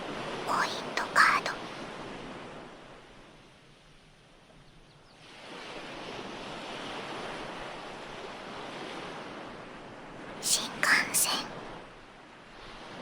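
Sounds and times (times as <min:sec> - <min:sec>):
ocean waves breaking and washing: 0:00.0 - 0:04.0, 0:05.2 - 0:13.0.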